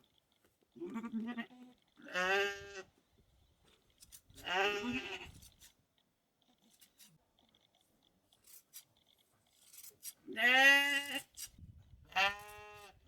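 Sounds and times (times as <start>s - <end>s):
sheep bleating: 0.8s - 2.9s, 4.4s - 5.3s, 10.3s - 11.2s, 12.1s - 12.9s.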